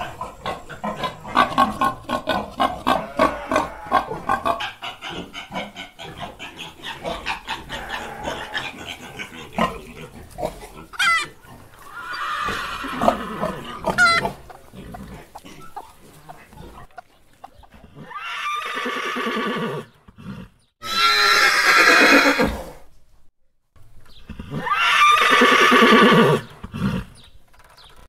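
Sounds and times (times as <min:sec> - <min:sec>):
horse whinnying: 0:11.9 - 0:14.3, 0:18.0 - 0:22.8, 0:24.3 - 0:27.1.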